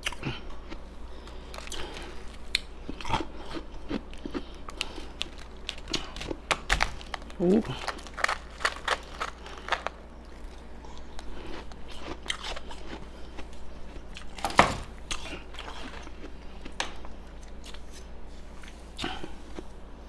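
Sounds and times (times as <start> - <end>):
ice being bitten and chewed: 0.0 - 14.5.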